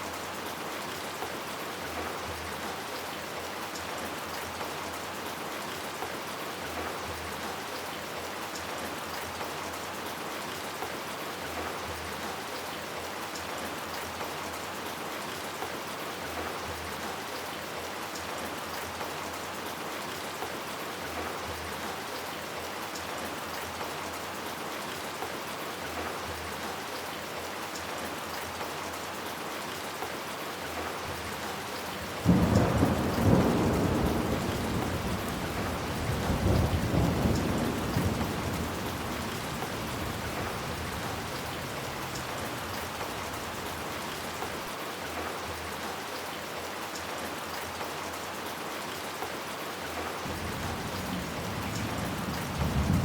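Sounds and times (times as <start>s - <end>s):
rain falling: 0.0s - 53.0s
thunderclap rumbling: 32.2s - 42.2s, 50.3s - 53.0s.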